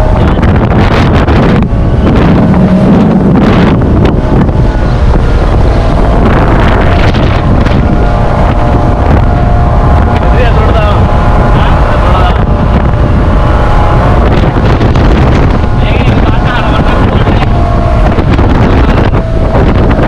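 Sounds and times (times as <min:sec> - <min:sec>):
boat engine: 0:00.0 - 0:20.0
water noise: 0:00.0 - 0:20.0
wind buffeting microphone: 0:00.0 - 0:20.0.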